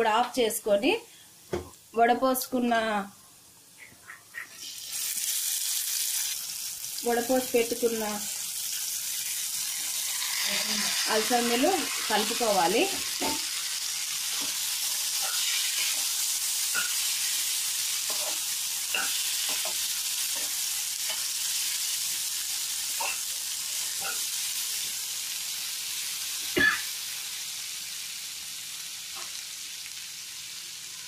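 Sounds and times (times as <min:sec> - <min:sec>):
food sizzling in hot oil: 0:03.8 - 0:31.0
spoon knocking and scraping pan: 0:12.9 - 0:13.5, 0:15.2 - 0:17.0, 0:18.0 - 0:21.3.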